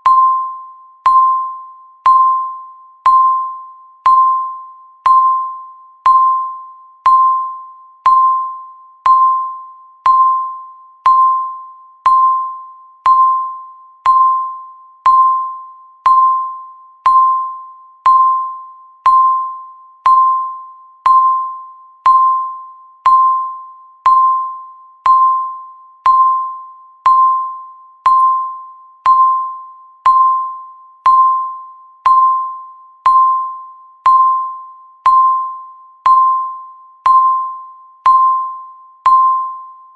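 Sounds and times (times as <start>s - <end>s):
timer ticking: 4.0s - 5.4s, 9.1s - 14.5s, 15.1s - 20.5s, 27.1s - 32.5s, 36.1s - 39.5s.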